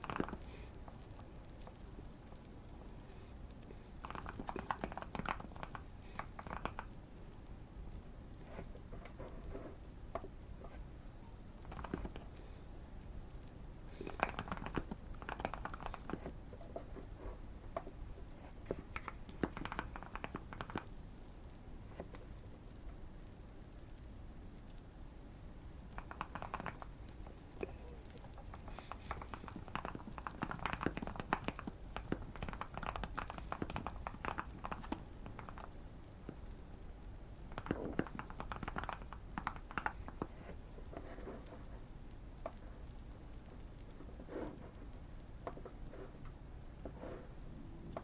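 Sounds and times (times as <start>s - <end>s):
faint fire crackling: 0.0s - 48.0s
mechanical keyboard typing: 4.0s - 6.9s, 11.6s - 12.3s, 14.1s - 16.8s, 18.6s - 20.9s, 25.9s - 26.9s, 27.6s - 35.8s, 37.4s - 40.3s.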